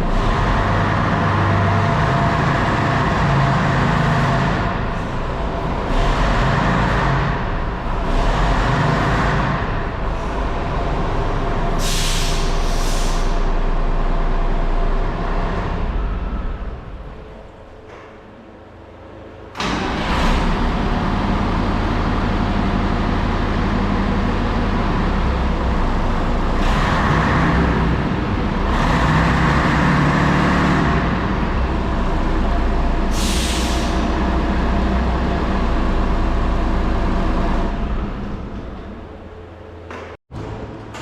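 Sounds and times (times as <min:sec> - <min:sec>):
diesel engine running: 0:00.0 - 0:17.9, 0:18.8 - 0:40.9
air brake hiss: 0:11.8 - 0:13.6, 0:33.1 - 0:34.2.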